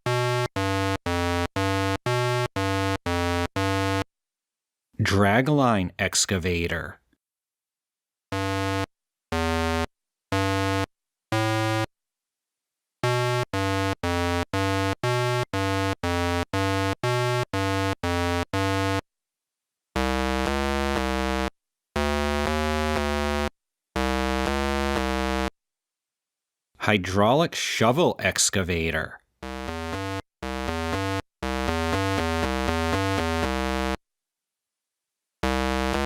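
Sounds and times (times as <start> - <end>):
synthesizer melody: 29.4 - 34.0.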